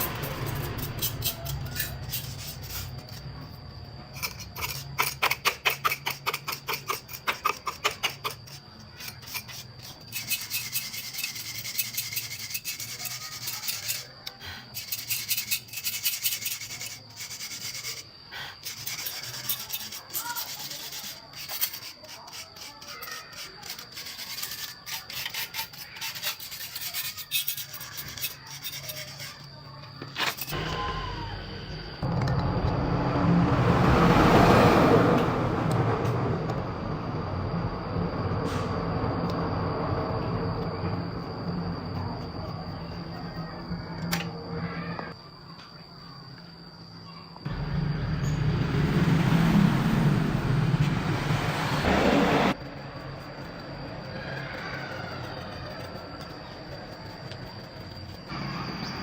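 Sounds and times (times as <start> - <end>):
rapid rasping strokes: 4.2 - 29.7.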